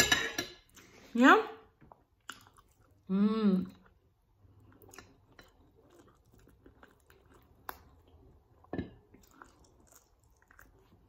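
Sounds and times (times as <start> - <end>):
person chewing: 1.9 - 3.1, 3.7 - 11.0.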